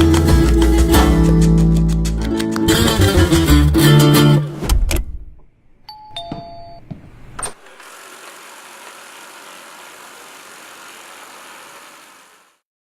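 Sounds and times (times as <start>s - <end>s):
vacuum motor whirring: 7.5s - 12.6s.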